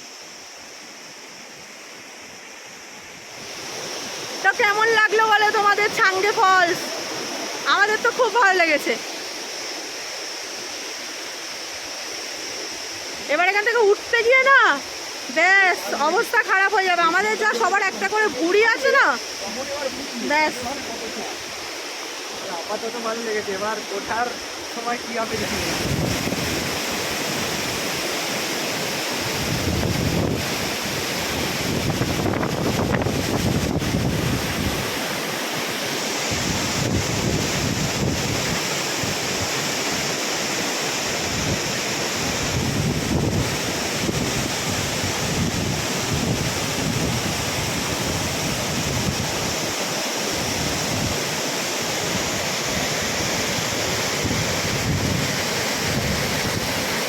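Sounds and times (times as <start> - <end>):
waterfall rushing: 0.0 - 57.0
wind buffeting microphone: 25.4 - 27.5, 29.2 - 35.1, 36.3 - 39.6, 41.2 - 51.4, 52.0 - 57.0.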